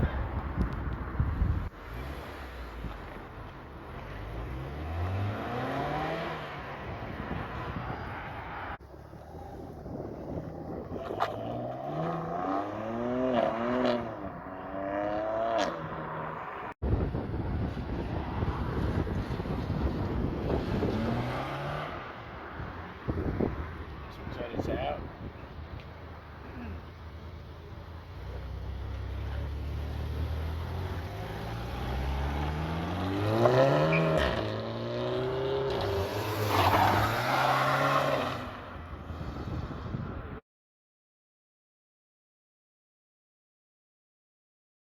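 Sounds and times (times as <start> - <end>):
car engine accelerating: 3.9 - 8.0, 27.6 - 38.5.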